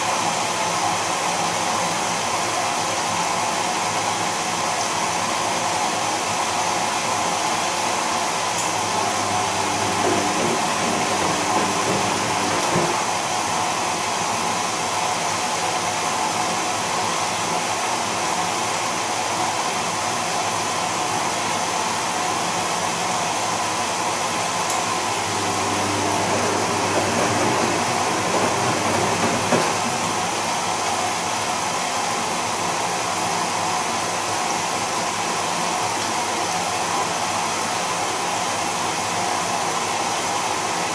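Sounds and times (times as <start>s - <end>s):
washing machine motor whirring: 8.5s - 13.6s, 24.7s - 31.0s.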